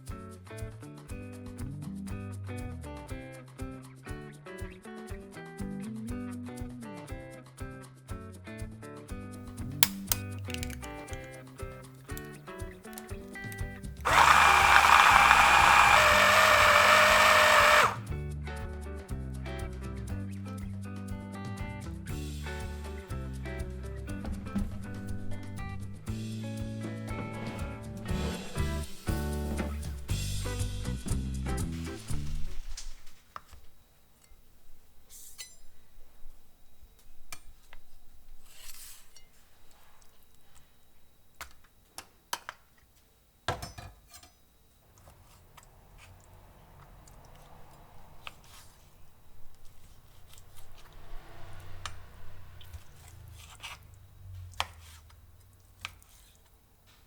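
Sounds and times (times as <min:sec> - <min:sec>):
blender motor running: 0:14.0 - 0:18.1.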